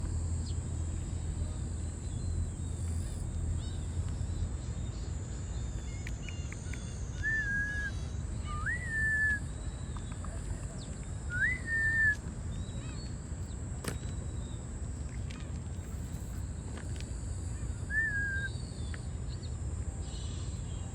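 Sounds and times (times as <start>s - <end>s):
steady low rumble: 0.0s - 6.6s
bird whistled notes: 6.9s - 10.1s, 11.3s - 13.0s, 17.9s - 19.0s.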